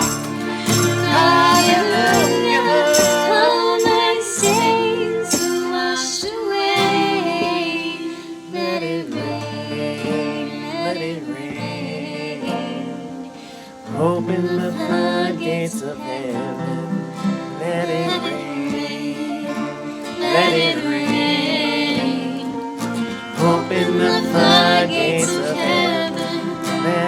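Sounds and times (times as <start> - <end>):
praise band playing: 0.0 - 8.7, 17.5 - 27.0
voices singing: 0.0 - 27.0.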